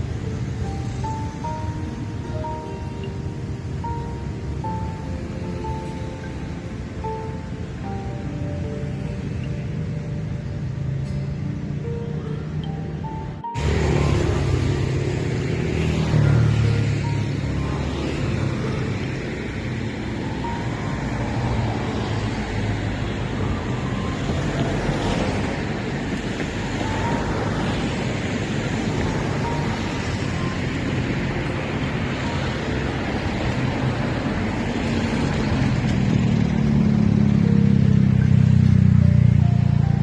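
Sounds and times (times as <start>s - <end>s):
road traffic noise: 0.0s - 40.0s
vehicle passing close: 13.3s - 40.0s.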